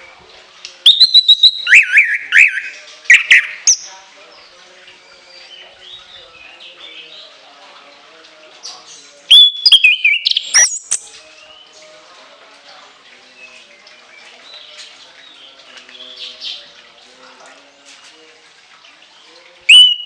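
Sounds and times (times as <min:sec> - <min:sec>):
bird singing shrill whistles: 0:00.9 - 0:03.8, 0:09.3 - 0:11.1, 0:19.7 - 0:20.0.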